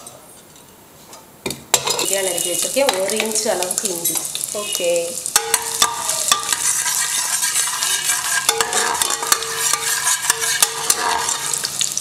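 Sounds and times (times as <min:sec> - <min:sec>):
ginger sizzling in hot ghee: 0:01.7 - 0:12.0
ladle scraping pan: 0:05.4 - 0:11.9.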